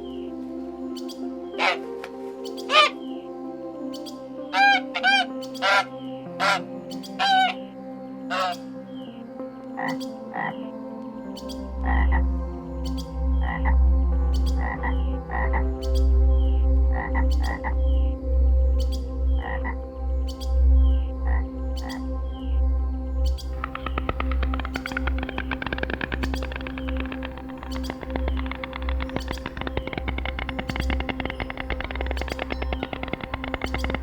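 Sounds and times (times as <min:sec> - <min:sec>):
deep pulsing croak: 0:01.0 - 0:01.8, 0:02.6 - 0:03.2, 0:04.4 - 0:34.0
short pitched animal calls: 0:01.6 - 0:01.9, 0:04.5 - 0:07.6, 0:08.3 - 0:08.6.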